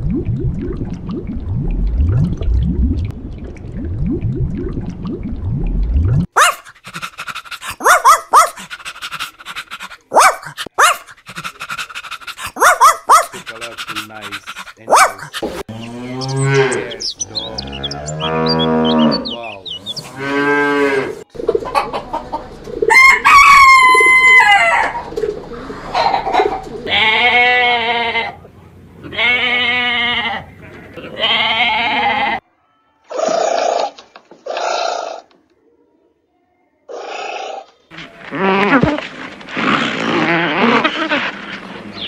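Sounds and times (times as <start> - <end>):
cattle mooing: 15.7 - 21.2
rooster crowing: 22.9 - 25.0.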